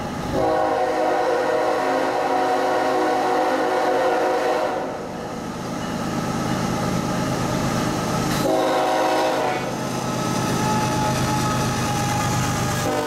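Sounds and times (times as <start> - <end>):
locomotive engines and wheels rumbling: 0.0 - 13.0
train air horn: 0.4 - 5.0, 8.3 - 9.8, 12.8 - 13.0.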